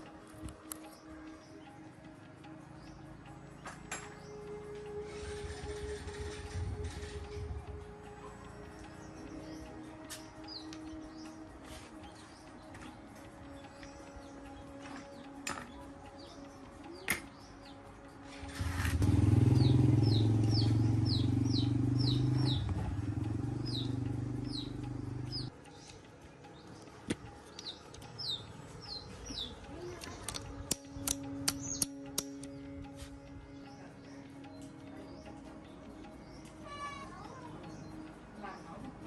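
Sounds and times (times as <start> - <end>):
bird chirping: 0.0 - 39.0
sharp metallic clicks: 18.4 - 32.8
motor running loudly: 18.5 - 25.5.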